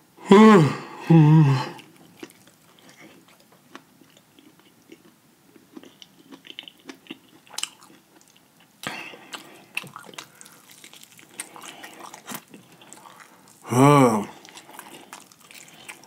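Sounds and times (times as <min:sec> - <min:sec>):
person chewing fried chicken: 0:01.7 - 0:16.0
crackle of chicken skin: 0:09.2 - 0:13.7, 0:14.3 - 0:16.0.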